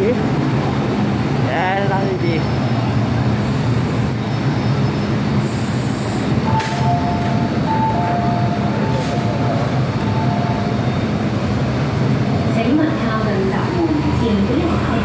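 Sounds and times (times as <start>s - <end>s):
train humming: 0.0s - 15.0s
two-tone beeping: 6.4s - 11.3s.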